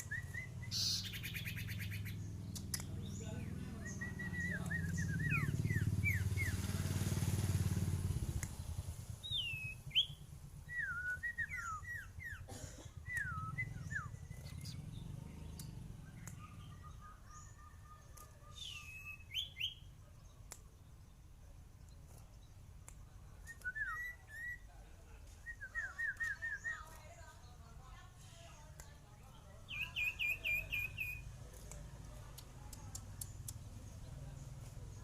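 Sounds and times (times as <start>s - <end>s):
songbird singing whistled notes: 0.0s - 7.0s, 7.7s - 27.9s, 28.7s - 35.0s.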